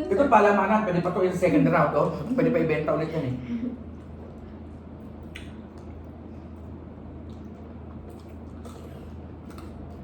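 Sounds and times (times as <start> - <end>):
steady low hum: 0.0 - 10.0
wet chewing mouth sounds: 4.0 - 10.0.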